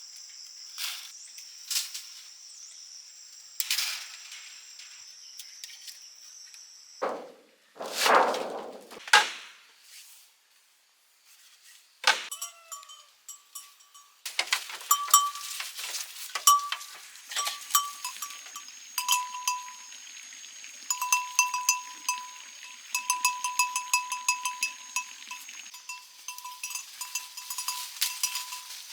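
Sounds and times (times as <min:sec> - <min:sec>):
sharp noisy knocks: 0:07.0 - 0:09.5
small metal bell clanking: 0:12.3 - 0:19.9, 0:20.9 - 0:28.9.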